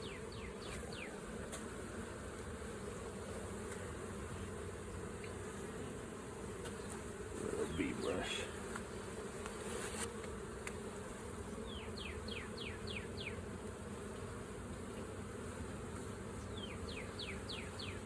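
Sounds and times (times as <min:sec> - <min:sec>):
bees buzzing: 0:00.0 - 0:18.0.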